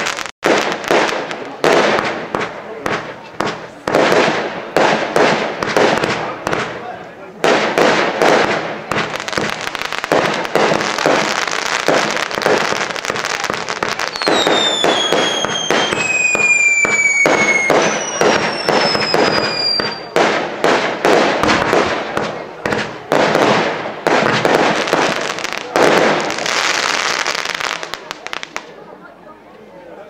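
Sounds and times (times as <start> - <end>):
firework bangs and crackling: 0.0 - 29.0
whistling fireworks: 7.4 - 28.8.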